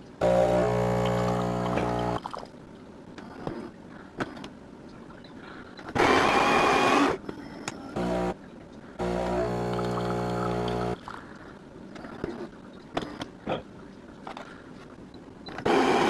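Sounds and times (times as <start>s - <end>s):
espresso machine pump humming: 0.2s - 2.2s, 9.0s - 11.0s.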